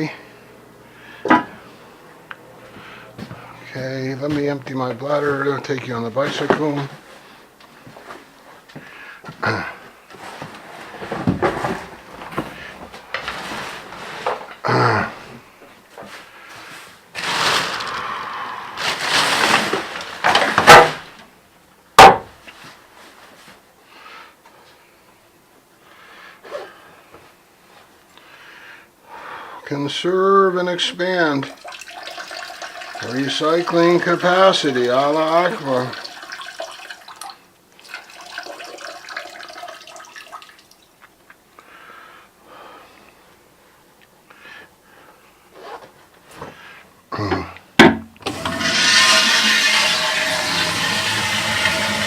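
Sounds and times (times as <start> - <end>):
scraping and rustling: 10.1 - 14.5, 16.0 - 18.0, 18.7 - 21.1, 48.3 - 52.0
sharp wooden knock: 22.0 - 22.3
water running and splashing: 31.5 - 40.8, 48.4 - 52.0
loud clattering: 48.3 - 52.0.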